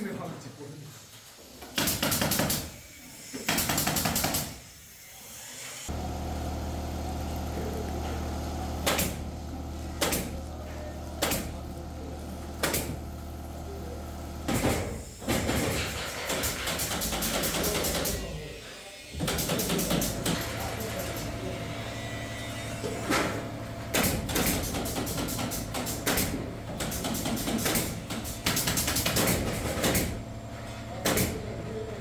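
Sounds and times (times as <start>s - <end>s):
motor hum: 5.9s - 14.9s.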